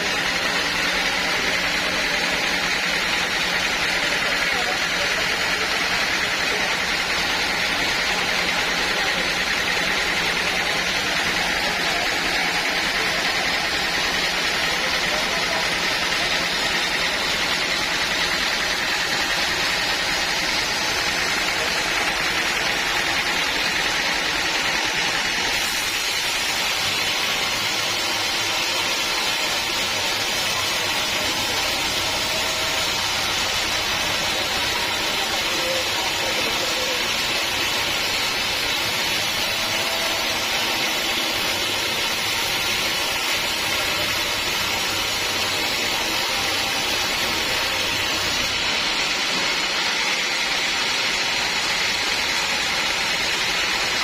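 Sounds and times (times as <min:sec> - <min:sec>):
sawmill machine running: 0:00.0 - 0:54.0.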